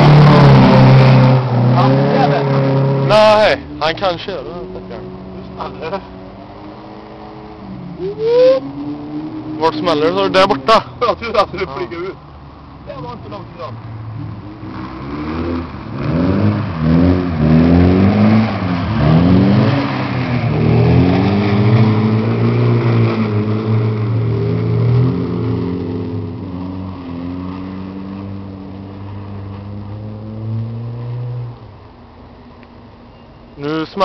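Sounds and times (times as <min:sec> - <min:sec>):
car engine accelerating past: 0:14.0 - 0:31.7.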